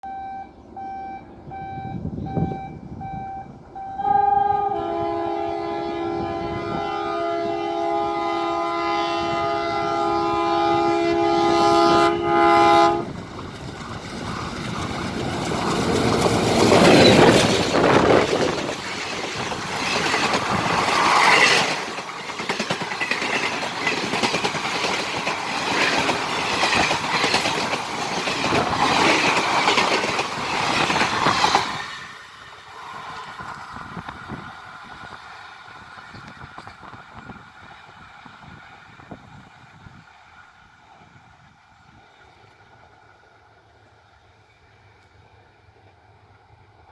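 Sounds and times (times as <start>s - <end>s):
train passing with loud rumble: 0.0s - 46.9s
locomotive multi-tone horn: 3.1s - 13.2s
wheels clattering over rail joints: 13.1s - 39.1s.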